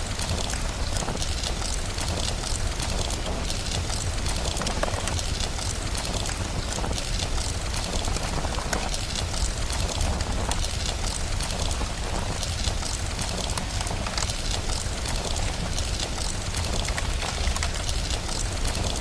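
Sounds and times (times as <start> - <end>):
fire crackling: 0.0 - 19.0
steady rain hissing: 0.0 - 19.0.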